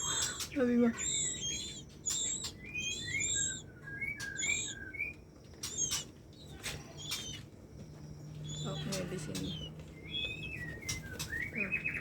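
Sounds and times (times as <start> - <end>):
bird chirps: 0.0 - 12.0
sharp clicks: 0.2 - 7.5.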